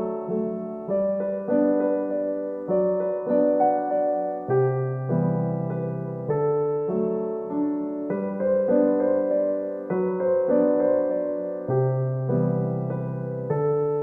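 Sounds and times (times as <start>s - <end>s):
soft piano slow chords: 0.0s - 14.0s.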